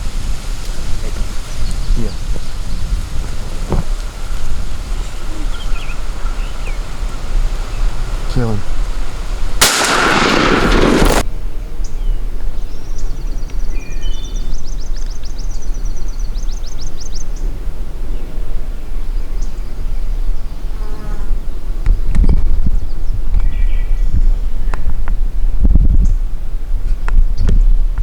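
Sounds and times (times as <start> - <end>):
wind rumble on microphone: 0.0 - 28.0
songbird trilling: 1.5 - 11.2
shotgun blast: 8.0 - 11.3.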